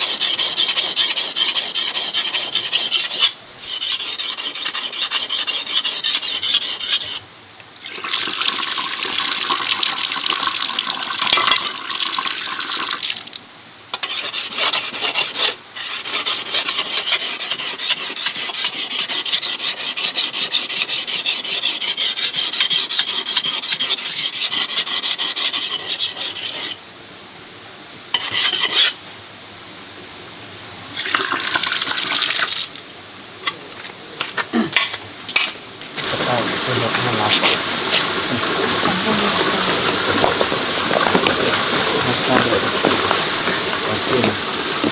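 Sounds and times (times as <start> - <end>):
rough rasping scraping: 0.0 - 7.2, 13.9 - 26.8, 28.1 - 29.0, 34.7 - 44.9.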